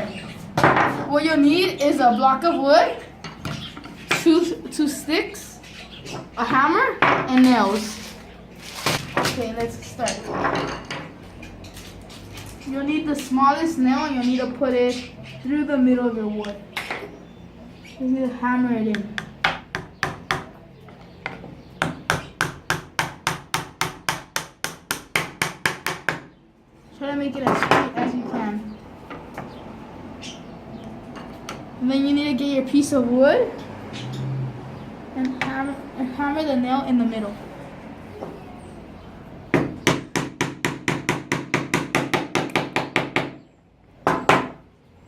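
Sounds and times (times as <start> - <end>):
hammer striking nail into wood: 21.8 - 26.3, 39.6 - 43.4.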